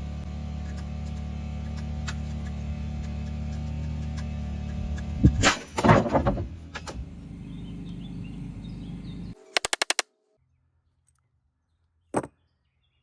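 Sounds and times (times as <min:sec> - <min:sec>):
sharp clicks: 0:09.5 - 0:10.0.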